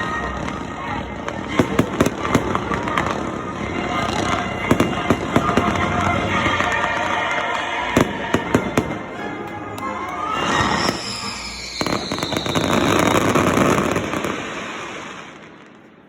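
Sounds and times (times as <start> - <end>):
falling firework whistle: 0.0 - 15.7
crackling firework bursts: 0.0 - 16.0
fireworks cracking: 0.0 - 16.0.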